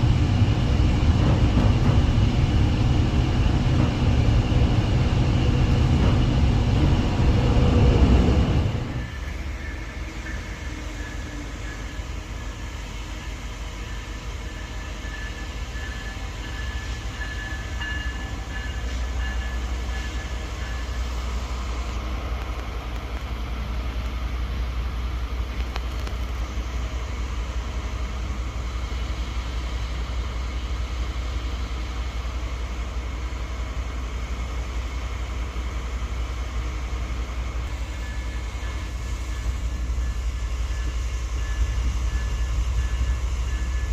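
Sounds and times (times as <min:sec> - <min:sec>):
diesel train rumbling: 0:00.0 - 0:43.9
faint high whine: 0:37.7 - 0:43.9.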